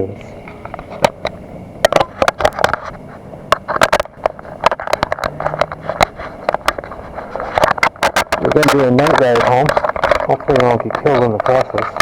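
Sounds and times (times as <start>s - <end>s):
low background rumble: 0.0s - 12.0s
camera handling clicks and scrapes: 3.6s - 12.0s.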